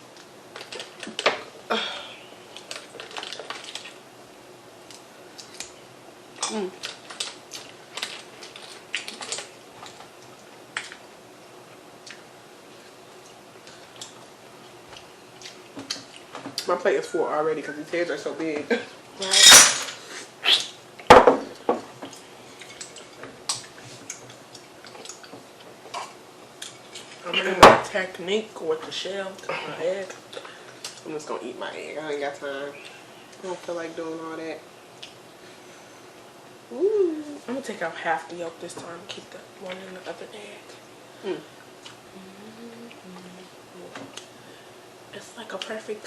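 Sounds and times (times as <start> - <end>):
shrimp shells crackling and snapping: 0.1 - 1.2, 6.7 - 11.0
tableware clicks and rustles: 19.2 - 20.0
knock on a plate: 21.1 - 21.8.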